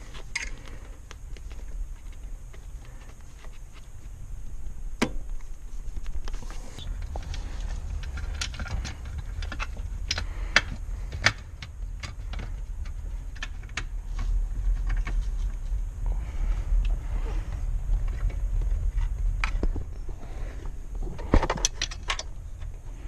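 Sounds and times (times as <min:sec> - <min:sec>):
low rumble: 0:00.0 - 0:23.0
clicks and knocks of car parts: 0:05.0 - 0:05.5, 0:07.0 - 0:13.9, 0:21.1 - 0:22.8.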